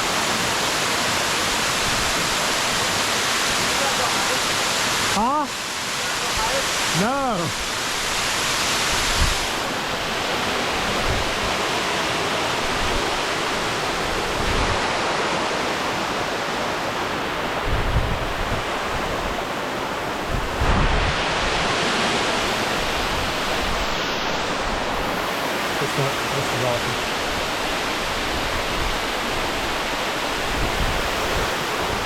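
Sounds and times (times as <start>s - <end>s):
waterfall rushing: 0.0s - 32.0s
wind buffeting microphone: 17.6s - 19.4s.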